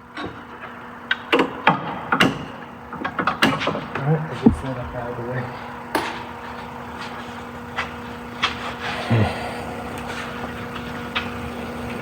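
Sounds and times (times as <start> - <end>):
steady low hum: 4.0 - 5.9
dull thump: 4.4 - 5.2.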